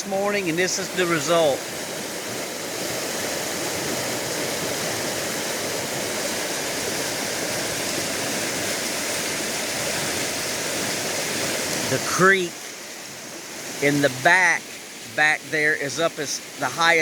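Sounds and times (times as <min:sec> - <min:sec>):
flooded creek rushing: 0:00.0 - 0:17.0.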